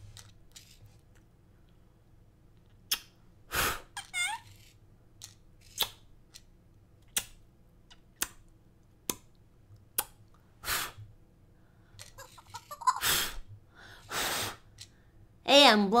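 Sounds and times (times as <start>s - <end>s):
lip-smack kisses: 2.9s - 3.2s, 5.7s - 6.0s, 7.1s - 8.4s
hissing puffs of breath: 3.5s - 4.0s, 10.6s - 11.1s, 13.0s - 15.0s.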